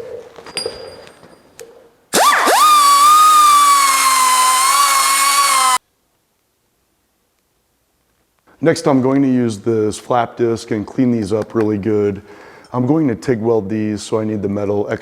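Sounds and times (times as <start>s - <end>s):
air tool high whine: 2.1s - 5.8s.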